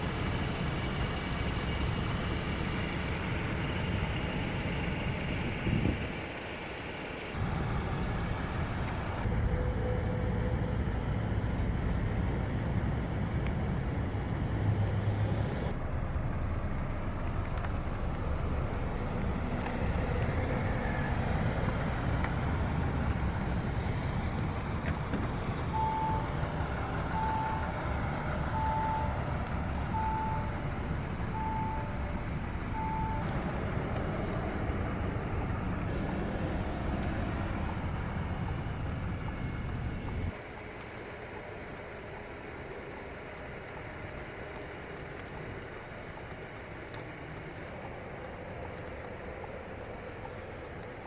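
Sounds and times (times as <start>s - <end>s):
vehicle engine rumbling: 0.0s - 51.0s
short beeps: 25.7s - 26.4s.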